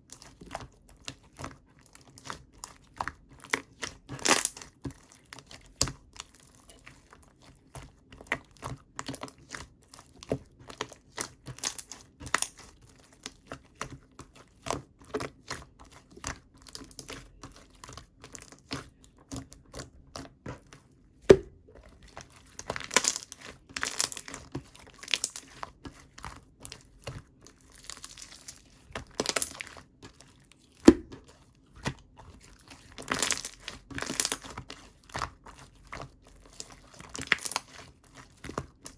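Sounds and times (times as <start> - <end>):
slime crackling: 21.4 - 38.9.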